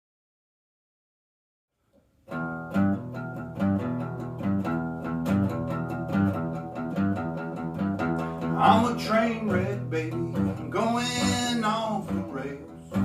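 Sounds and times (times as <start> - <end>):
country guitar picking: 2.3 - 13.0.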